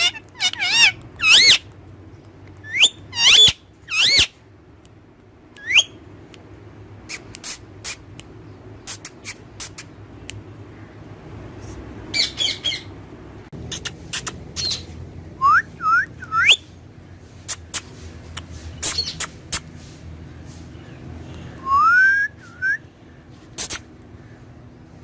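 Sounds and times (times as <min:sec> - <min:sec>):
parrot screeching: 0:00.0 - 0:01.6, 0:02.7 - 0:04.4, 0:12.1 - 0:12.9.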